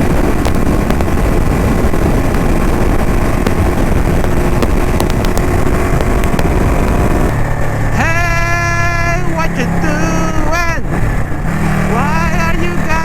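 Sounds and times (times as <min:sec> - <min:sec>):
wind rush on microphone: 0:00.0 - 0:08.1
motorcycle engine: 0:00.0 - 0:13.0
person's voice: 0:08.0 - 0:10.9, 0:11.9 - 0:13.0.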